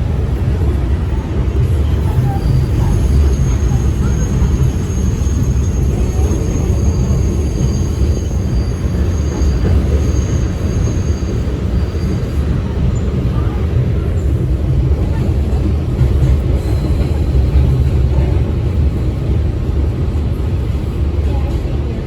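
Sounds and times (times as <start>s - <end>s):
subway train rumbling on rails: 0.0s - 22.0s
faint high squeal: 2.2s - 12.4s.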